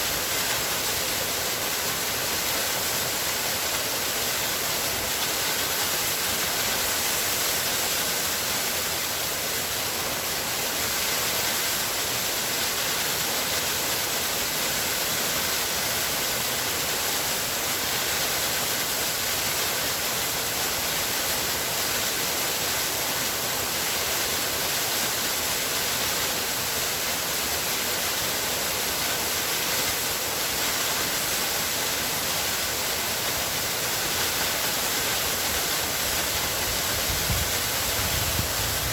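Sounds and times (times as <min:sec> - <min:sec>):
waterfall rushing: 0:26.3 - 0:38.9.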